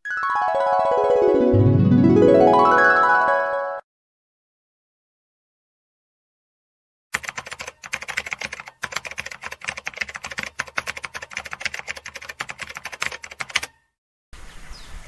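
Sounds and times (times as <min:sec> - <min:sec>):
keyboard typing clicks: 0:07.2 - 0:13.8.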